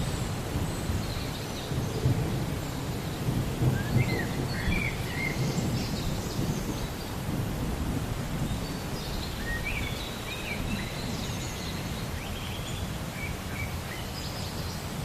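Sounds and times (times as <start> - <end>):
rolling thunder rumble: 0.0 - 11.2
steady rain hiss: 0.0 - 15.0.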